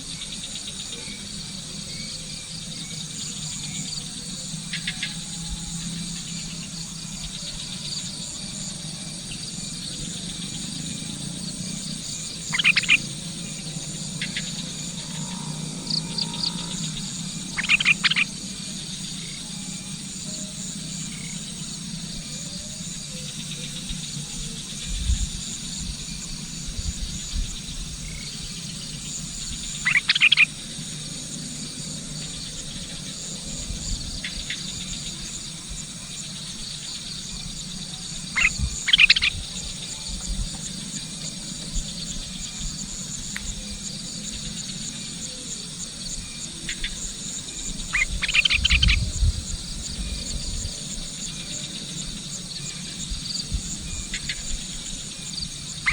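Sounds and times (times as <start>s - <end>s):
insects chirring: 0.0s - 55.9s
bird calling: 12.5s - 13.1s, 14.2s - 18.3s, 29.8s - 30.5s, 38.3s - 39.6s, 47.8s - 49.0s.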